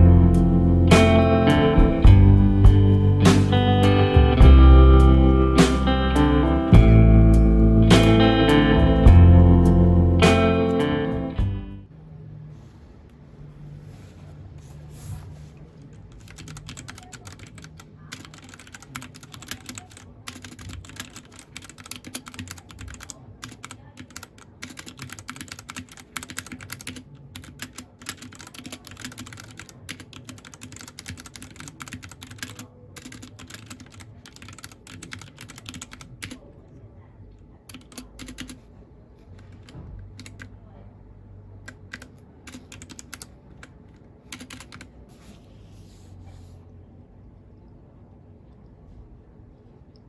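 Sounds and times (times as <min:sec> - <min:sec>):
mechanical keyboard typing: 0:15.9 - 0:36.4, 0:37.7 - 0:38.6, 0:39.4 - 0:40.5, 0:41.7 - 0:44.9.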